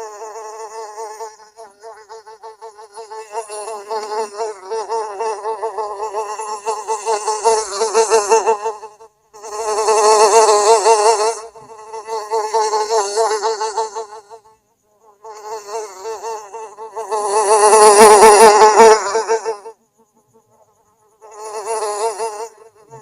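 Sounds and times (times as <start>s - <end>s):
housefly buzzing: 0.0s - 23.0s.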